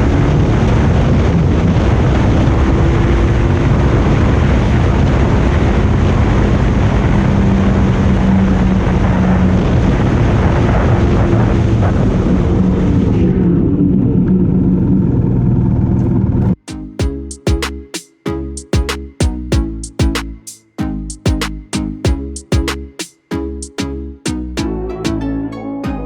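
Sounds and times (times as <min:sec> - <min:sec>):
motorcycle engine at speed: 0:00.0 - 0:16.5
wind buffeting microphone: 0:00.0 - 0:16.5.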